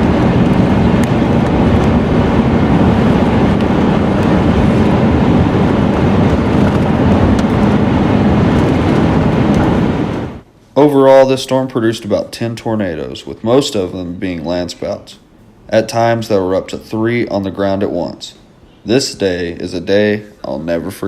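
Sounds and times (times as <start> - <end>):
road and engine noise in car: 0.0 - 10.4.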